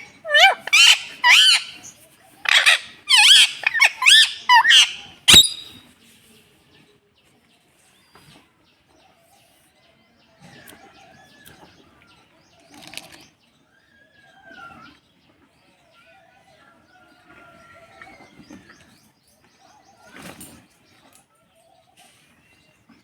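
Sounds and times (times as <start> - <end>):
parrot squawking: 0.0 - 5.8
faint whistles and chirps: 0.0 - 5.9.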